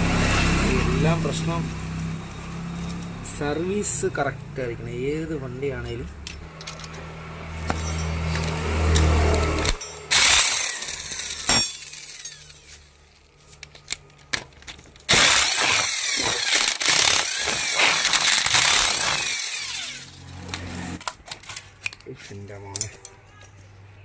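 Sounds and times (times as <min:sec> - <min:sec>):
power tool running: 0:07.6 - 0:13.0, 0:15.1 - 0:21.0.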